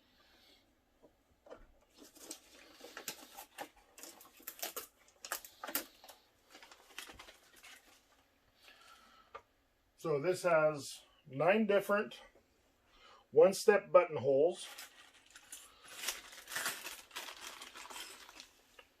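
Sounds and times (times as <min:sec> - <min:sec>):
packaging crinkling and tapping: 0:01.4 - 0:08.2, 0:14.7 - 0:18.9.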